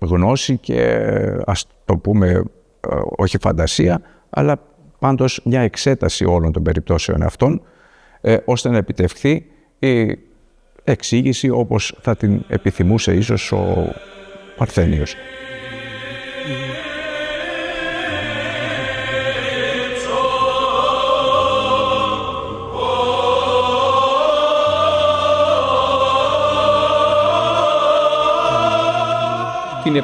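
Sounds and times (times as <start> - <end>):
choir chanting: 11.7 - 30.0
low sustained vocal drone: 11.9 - 30.0.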